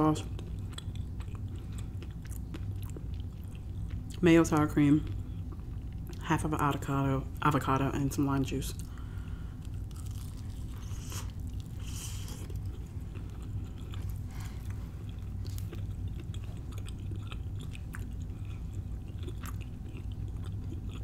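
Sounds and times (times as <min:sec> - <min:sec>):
crunchy chewing: 0:00.2 - 0:04.2, 0:08.8 - 0:21.0
wet chewing sounds: 0:00.2 - 0:06.2, 0:08.8 - 0:21.0
person biting into pastry: 0:09.7 - 0:21.0.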